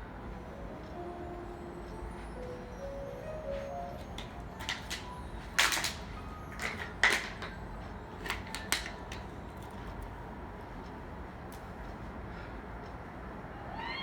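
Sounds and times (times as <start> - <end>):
sharp clicks and knocks: 4.1 - 7.6, 8.2 - 9.8.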